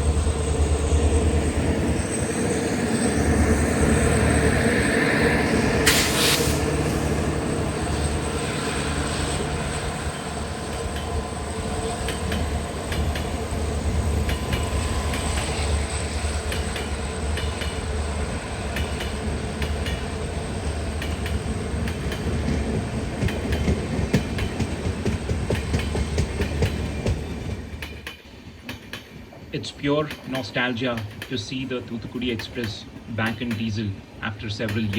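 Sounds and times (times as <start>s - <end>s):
train rumbling past: 0.0s - 34.9s
short hiss: 5.9s - 6.7s
wheels clicking over rail joints: 21.0s - 34.9s.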